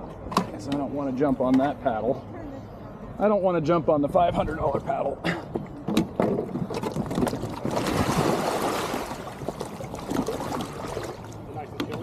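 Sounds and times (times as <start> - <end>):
water splashing around kayak: 6.4 - 12.0.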